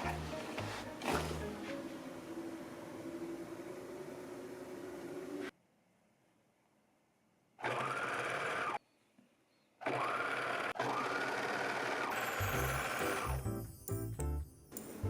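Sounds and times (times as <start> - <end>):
background music: 0.0 - 3.3, 12.1 - 15.0
electric sewing machine stitching: 7.6 - 8.8, 9.8 - 13.4.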